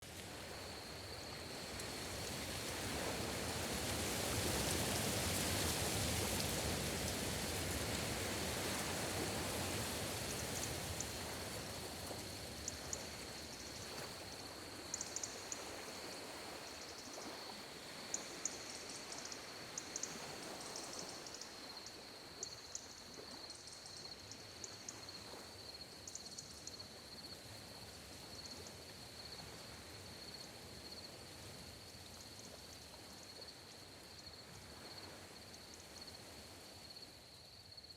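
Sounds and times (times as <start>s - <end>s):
sea waves washing ashore: 0.1s - 21.4s.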